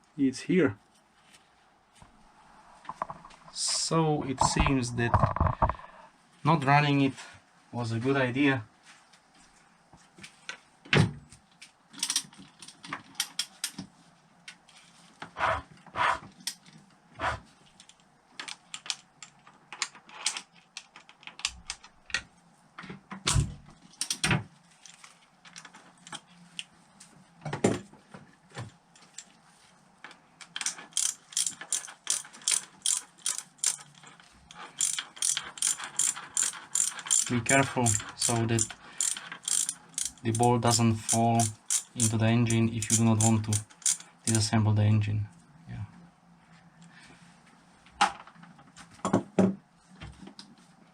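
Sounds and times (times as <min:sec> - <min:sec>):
ratchet wrench clicking: 0:30.6 - 0:34.0, 0:34.8 - 0:44.4.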